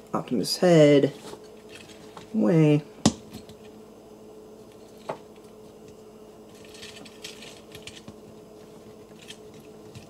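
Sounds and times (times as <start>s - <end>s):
plastic toy parts clicking and scraping: 6.5s - 8.1s, 9.1s - 10.0s.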